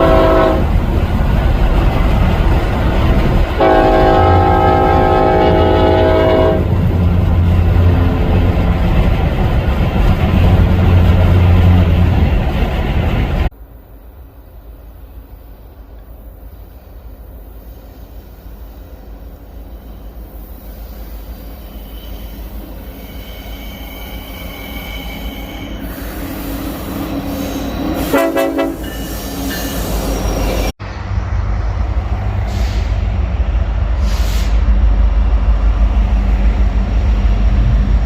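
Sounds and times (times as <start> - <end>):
locomotive horn blast: 0.0 - 0.7, 3.6 - 7.1, 28.0 - 29.0
diesel locomotive rumble: 0.0 - 38.0.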